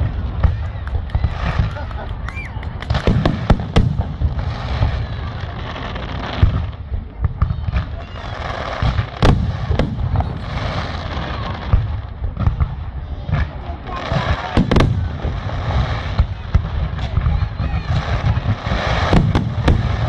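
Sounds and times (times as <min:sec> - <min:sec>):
fireworks booming and cracking: 0:00.0 - 0:20.0
fireworks crackling: 0:00.0 - 0:20.0
rising firework whistle: 0:00.5 - 0:03.6, 0:07.6 - 0:11.9.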